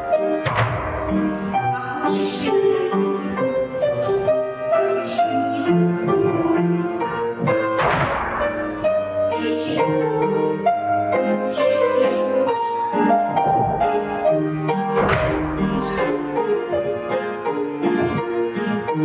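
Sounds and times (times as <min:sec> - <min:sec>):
instrumental piano music: 0:00.0 - 0:19.0.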